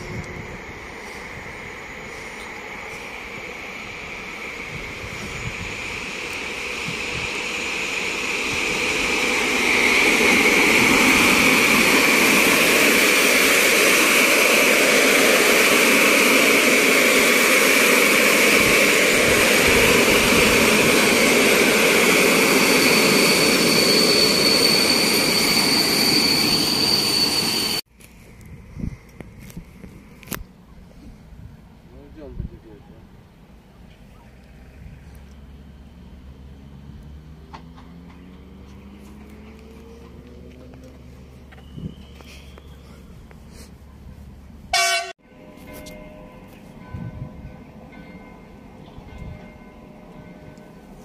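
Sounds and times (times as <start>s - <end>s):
train wheels rumbling on rails: 0.0s - 27.8s, 28.5s - 51.0s
thin high whine: 0.0s - 28.4s.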